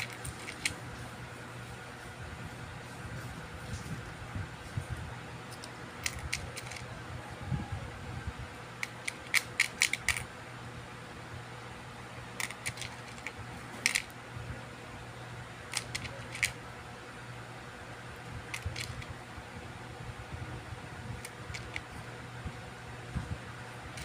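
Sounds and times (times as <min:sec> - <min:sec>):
small hard parts clicking: 0:00.0 - 0:00.8, 0:05.5 - 0:06.9, 0:08.7 - 0:10.3, 0:12.4 - 0:14.2, 0:15.7 - 0:16.6, 0:18.4 - 0:19.1, 0:21.2 - 0:22.0
steady low hum: 0:00.0 - 0:24.0.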